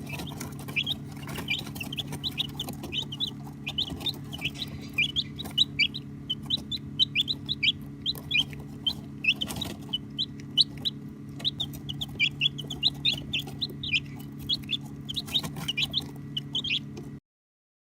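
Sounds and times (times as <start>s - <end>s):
baby chicks peeping: 0.0s - 17.2s
steady low hum: 0.0s - 17.2s.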